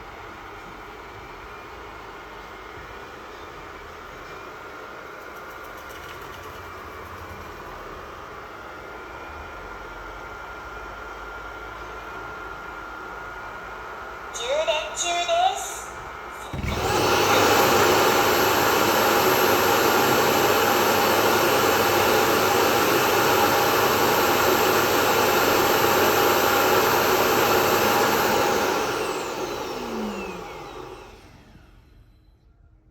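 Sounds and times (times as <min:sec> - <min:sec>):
vacuum dock suction motor rushing: 0:16.0 - 0:32.0.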